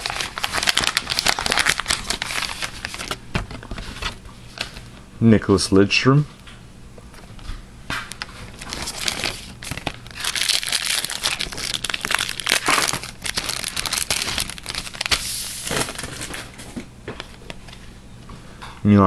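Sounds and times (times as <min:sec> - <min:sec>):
wrapper tearing and crinkling: 0:00.0 - 0:04.7, 0:08.0 - 0:16.5.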